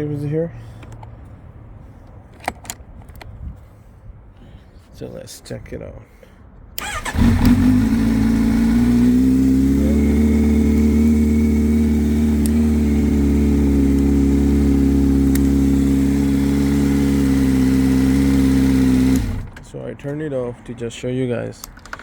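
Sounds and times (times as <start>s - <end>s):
motorcycle engine idling: 6.8s - 19.5s.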